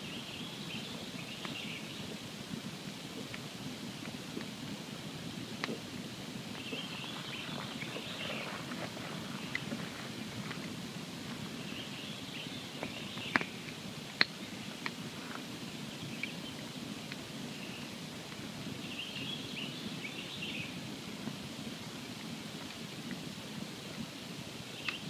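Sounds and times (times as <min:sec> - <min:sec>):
campfire rushing: 0:01.0 - 0:15.9
fire crackling pops: 0:02.3 - 0:11.6, 0:12.8 - 0:15.5.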